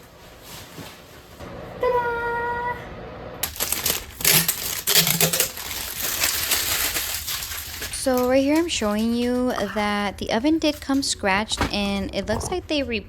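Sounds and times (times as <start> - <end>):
packaging crinkling and clattering: 3.4 - 10.0.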